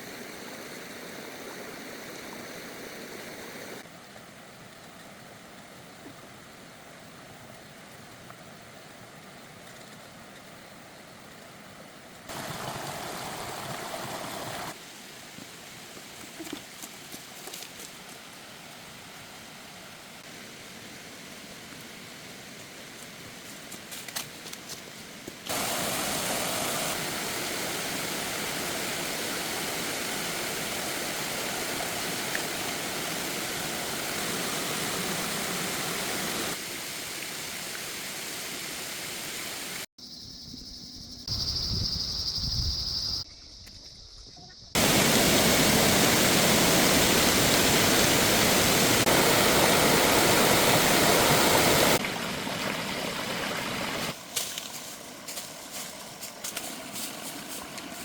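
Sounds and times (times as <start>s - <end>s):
rushing water: 12.3s - 16.6s, 17.8s - 39.9s, 44.8s - 58.0s.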